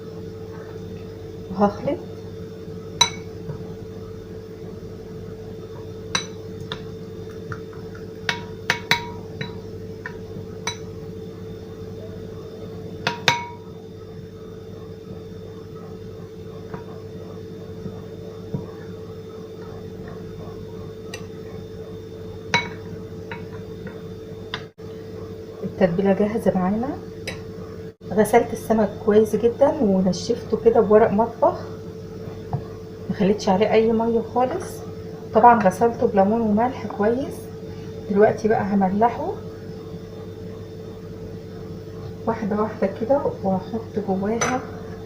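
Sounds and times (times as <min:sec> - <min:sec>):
steady hum: 0:00.0 - 0:45.0
spoon clinking against dish: 0:03.0 - 0:03.3, 0:06.2 - 0:09.6, 0:10.7 - 0:10.9.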